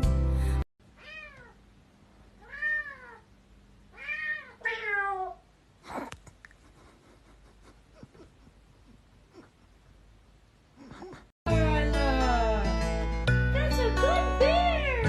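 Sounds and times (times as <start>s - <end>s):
cat meowing: 1.0s - 1.6s, 2.4s - 3.3s, 3.9s - 5.4s.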